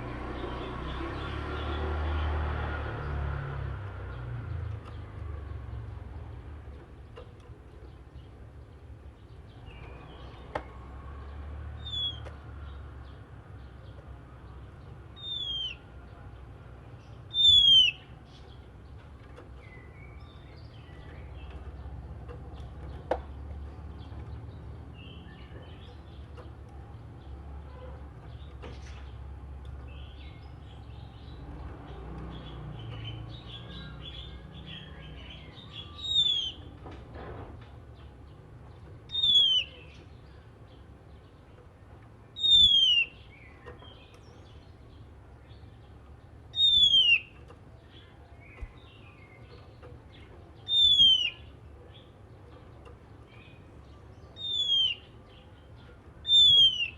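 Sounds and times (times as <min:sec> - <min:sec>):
bird whistling song: 0:11.8 - 0:12.4, 0:15.2 - 0:15.9, 0:17.3 - 0:18.2, 0:32.8 - 0:36.7, 0:39.1 - 0:40.0, 0:42.4 - 0:44.1, 0:46.5 - 0:47.4, 0:50.6 - 0:51.6, 0:54.2 - 0:55.4, 0:56.2 - 0:56.9
soft bird chattering: 0:15.2 - 0:15.9, 0:17.1 - 0:18.6, 0:32.8 - 0:36.7, 0:39.1 - 0:41.5, 0:46.5 - 0:56.9.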